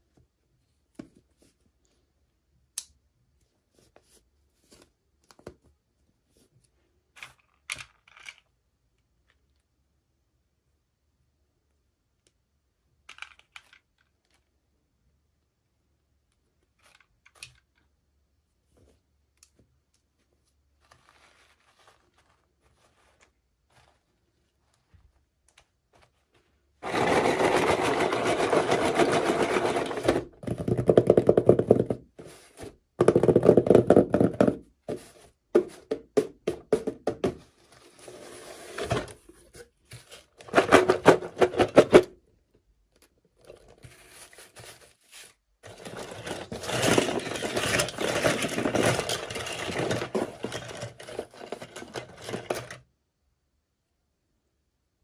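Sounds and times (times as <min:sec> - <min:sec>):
packaging scraping and rustling: 0:20.8 - 0:24.3, 0:26.8 - 0:30.4, 0:37.6 - 0:42.0, 0:43.5 - 0:52.8.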